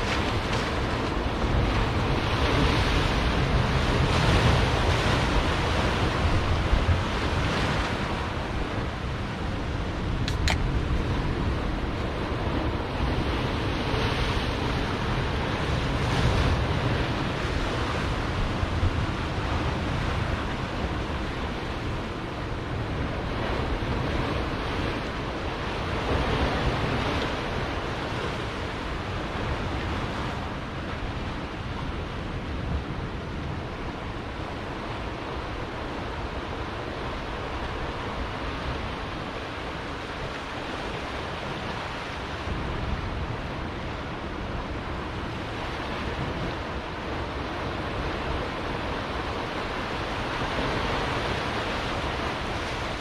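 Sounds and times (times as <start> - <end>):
ocean surf on rocks: 0.0 - 53.0
brief click: 10.2 - 10.7.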